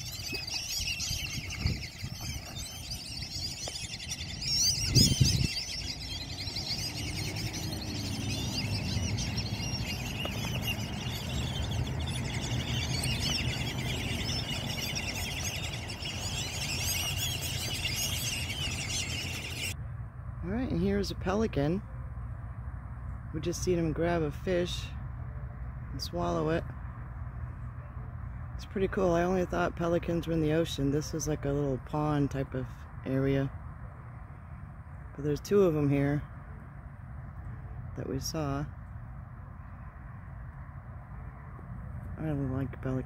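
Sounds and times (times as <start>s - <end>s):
small birds chirping: 0.0s - 19.8s.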